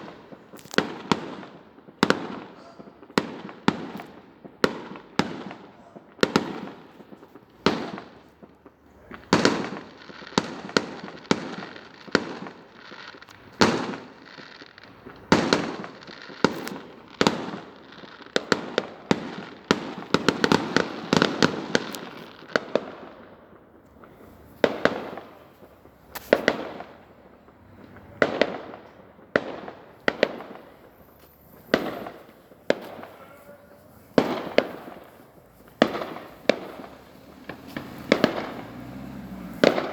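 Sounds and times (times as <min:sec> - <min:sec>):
fireworks bursting with bangs: 0:00.0 - 0:39.9
fireworks crackling: 0:00.0 - 0:39.9.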